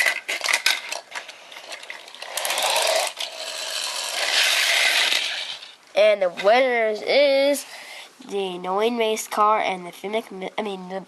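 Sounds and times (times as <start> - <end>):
toy car motors whirring: 0.0 - 5.8.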